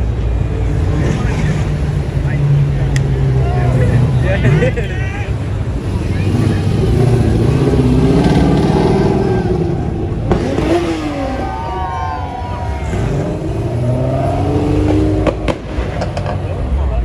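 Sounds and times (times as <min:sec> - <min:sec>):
car engines revving and accelerating: 0:00.0 - 0:17.0
sharp crack: 0:14.8 - 0:16.5.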